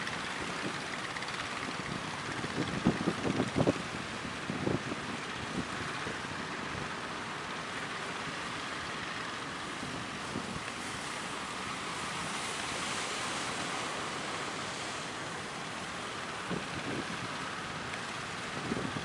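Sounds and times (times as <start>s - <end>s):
sea waves breaking: 0.0s - 19.0s
wind buffeting microphone: 1.8s - 6.9s, 16.4s - 19.0s.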